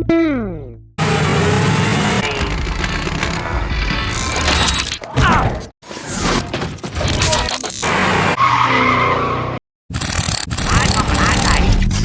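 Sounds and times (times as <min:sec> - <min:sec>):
cracks and clanks: 0:02.2 - 0:08.2.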